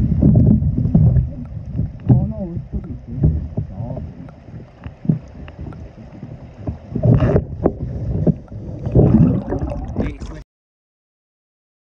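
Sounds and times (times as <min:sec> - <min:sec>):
wind buffeting microphone: 0:00.0 - 0:10.4
river water sloshing and splashing: 0:03.7 - 0:10.4.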